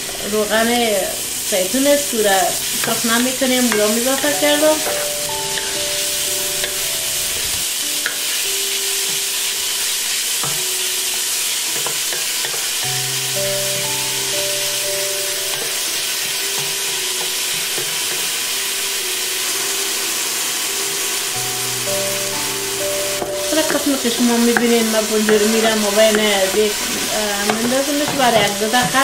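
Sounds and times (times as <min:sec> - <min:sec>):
onions sizzling in oil: 0:00.0 - 0:29.0
soft background music: 0:00.0 - 0:29.0
wooden spoon scraping a pot: 0:23.5 - 0:29.0.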